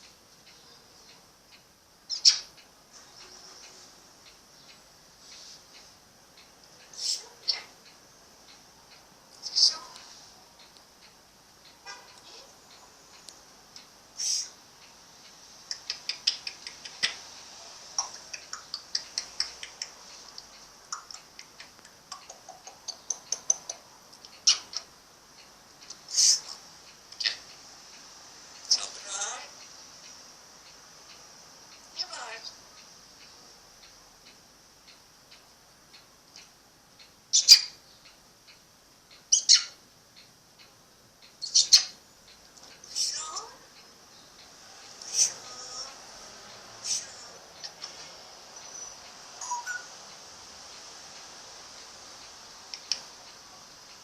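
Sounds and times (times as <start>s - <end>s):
faint regular ticking: 0.0s - 54.0s
parrot squawking: 2.1s - 2.5s, 24.4s - 24.9s, 26.1s - 26.6s, 27.2s - 27.5s, 28.7s - 29.5s, 32.0s - 32.6s, 37.3s - 37.8s, 39.3s - 39.8s, 41.4s - 42.0s, 45.0s - 46.0s, 48.7s - 49.9s
sharp high clicks: 5.7s - 29.0s, 29.6s - 54.0s.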